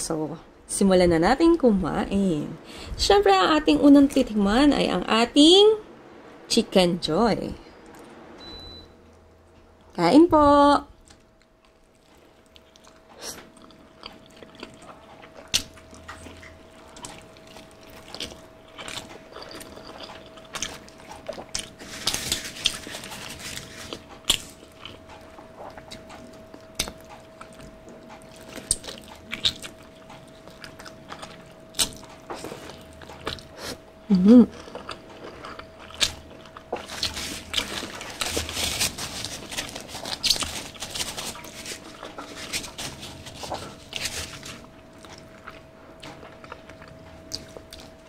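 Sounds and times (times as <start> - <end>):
wet chewing: 11.0 - 33.8, 34.5 - 48.0
crunching fried chicken skin: 34.8 - 45.3.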